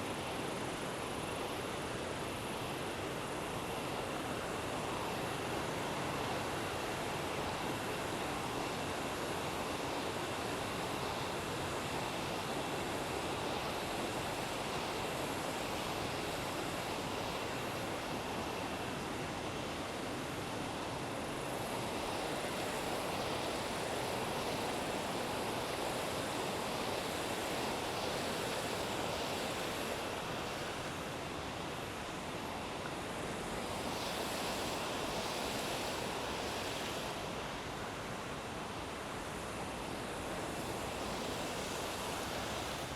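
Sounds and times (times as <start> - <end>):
river rushing: 10.7 - 42.9.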